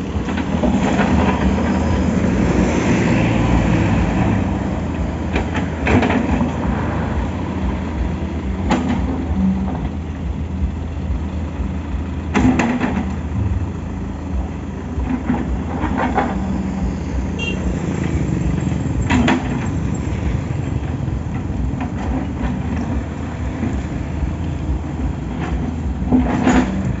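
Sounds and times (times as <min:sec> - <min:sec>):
excavator diesel engine running: 0:00.0 - 0:27.0
metallic clanks and scrapes: 0:25.3 - 0:27.0.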